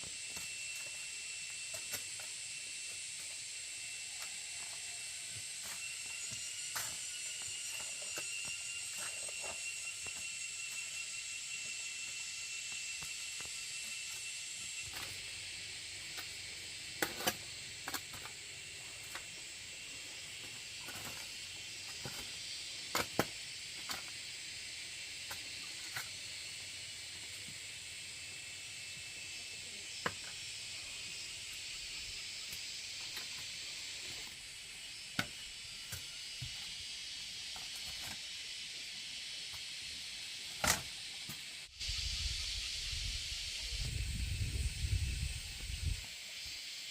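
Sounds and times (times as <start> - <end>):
heavy rain hiss: 41.4 - 46.9.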